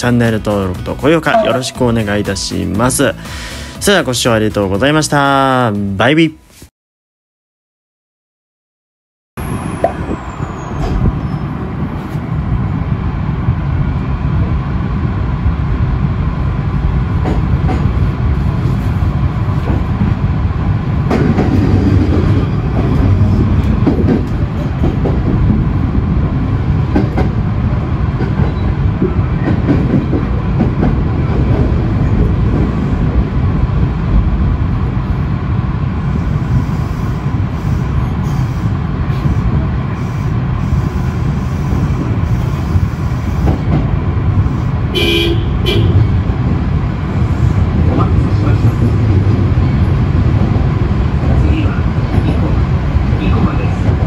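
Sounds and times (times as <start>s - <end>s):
train wheels and motors rumbling: 9.4s - 54.0s
train horn blasts: 44.9s - 46.1s.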